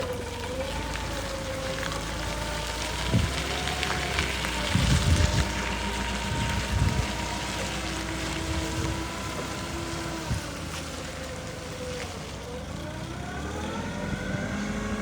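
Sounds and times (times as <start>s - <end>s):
forklift engine rumbling: 0.0s - 15.0s.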